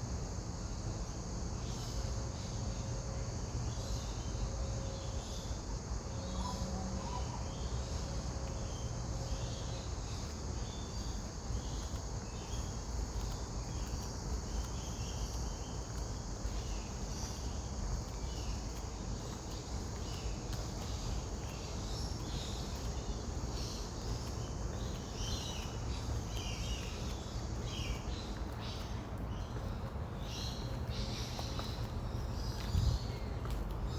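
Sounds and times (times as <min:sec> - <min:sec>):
insect drone: 0:00.0 - 0:33.9.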